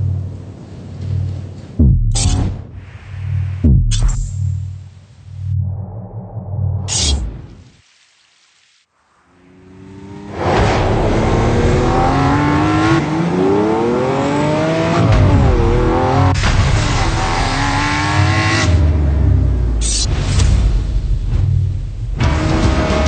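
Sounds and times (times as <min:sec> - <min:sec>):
car engine revving: 0:09.5 - 0:20.0, 0:22.2 - 0:23.0.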